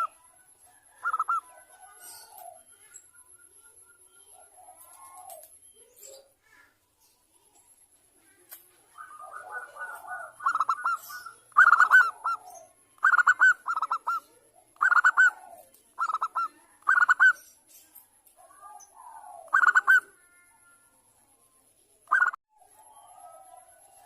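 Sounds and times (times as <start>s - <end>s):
faint bird warbling: 0.0s - 0.2s, 0.9s - 6.8s, 8.9s - 17.5s, 18.5s - 21.0s
dove cooing in rapid bursts: 0.8s - 2.7s, 4.3s - 5.6s, 8.9s - 17.4s, 18.6s - 20.1s.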